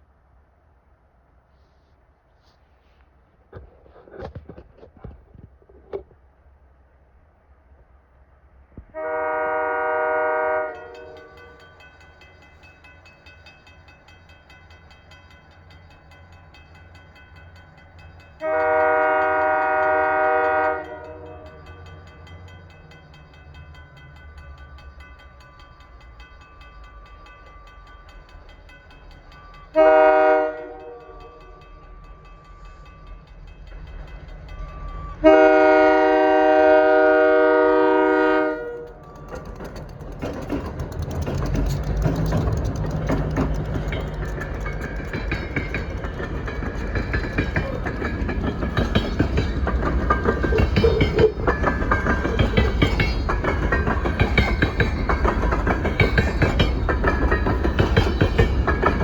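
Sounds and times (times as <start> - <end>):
train engine rumble: 0.0 - 59.0
locomotive horn blast: 8.9 - 11.3, 18.4 - 21.5, 29.8 - 31.2, 35.2 - 39.0
wheel clatter on rails: 38.7 - 59.0.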